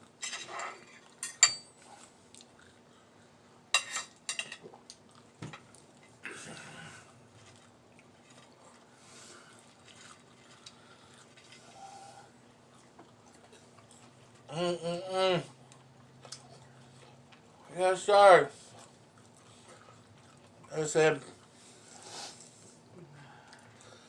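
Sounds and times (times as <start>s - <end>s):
crunchy chewing of fried food: 1.8s - 3.4s, 4.6s - 6.2s, 7.0s - 14.5s, 15.5s - 17.7s, 18.5s - 24.0s.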